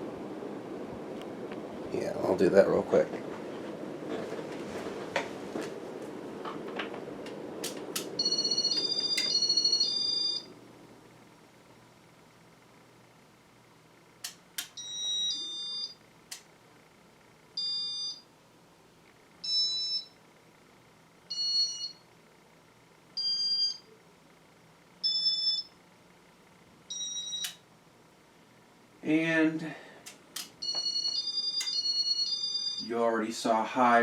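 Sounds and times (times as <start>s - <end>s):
faint low hum: 0.0s - 34.0s
sharp clicks: 7.6s - 8.2s, 14.2s - 14.8s, 16.3s - 16.5s, 30.0s - 30.6s.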